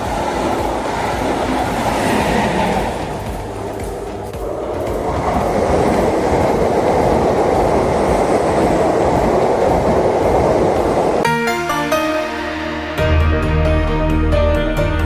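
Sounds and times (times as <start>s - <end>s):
music: 0.0s - 7.2s, 11.2s - 15.0s
train wheels on track: 0.0s - 11.2s.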